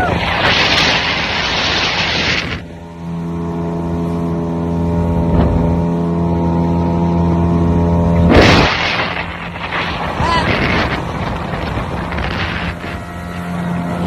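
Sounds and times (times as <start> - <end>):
loud rush of noise: 0.0 - 2.8, 8.3 - 13.1
motorboat engine droning: 0.0 - 14.0.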